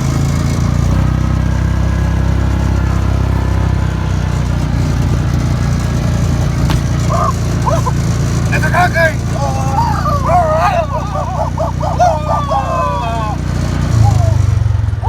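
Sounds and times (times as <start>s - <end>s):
small engine running: 0.0s - 15.0s
dog yipping: 6.8s - 8.2s, 9.3s - 14.5s.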